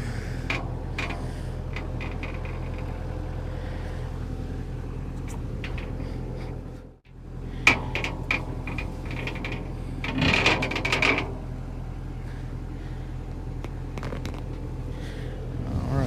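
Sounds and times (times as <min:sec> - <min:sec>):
steady machine hum: 0:00.0 - 0:16.0
metal knocks: 0:00.4 - 0:03.2, 0:07.6 - 0:11.6.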